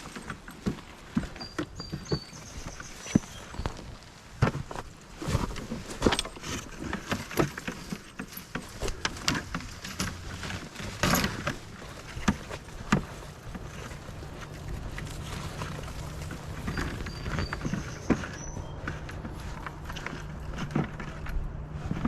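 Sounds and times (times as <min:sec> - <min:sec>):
footsteps on rough ground: 0:00.0 - 0:22.0.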